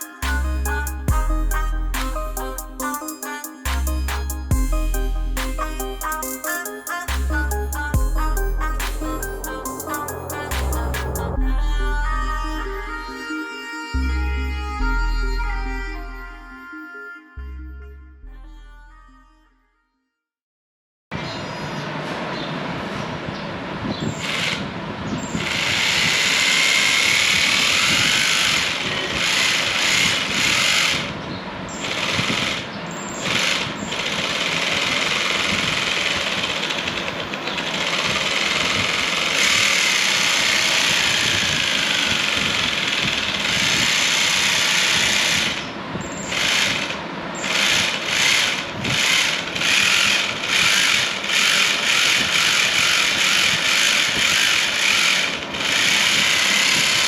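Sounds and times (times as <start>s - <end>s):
motor driving plastic gearbox: 31.8s - 45.6s, 46.2s - 57.0s.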